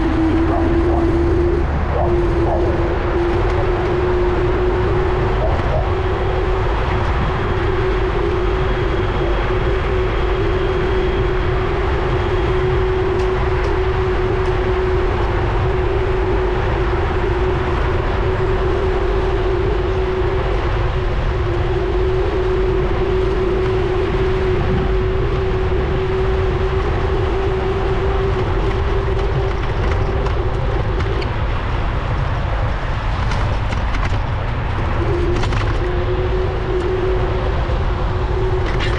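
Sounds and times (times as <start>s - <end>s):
steady hum: 0.0s - 38.9s
wind rumbling on microphone: 0.0s - 38.9s.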